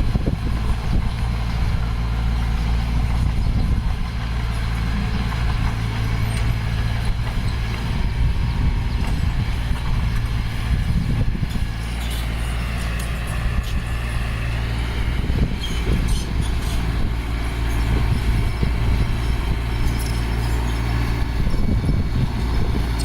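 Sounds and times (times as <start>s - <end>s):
diesel engine droning: 0.0s - 23.0s.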